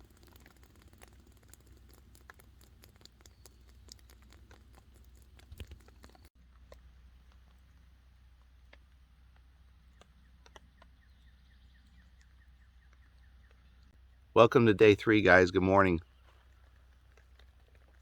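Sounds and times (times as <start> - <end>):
water dripping onto a tarp: 0.0 - 11.0.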